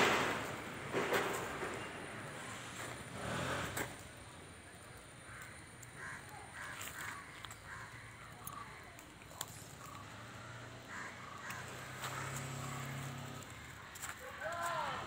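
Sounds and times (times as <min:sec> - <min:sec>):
fire crackling: 0:00.0 - 0:15.0
birds cawing: 0:05.1 - 0:15.0.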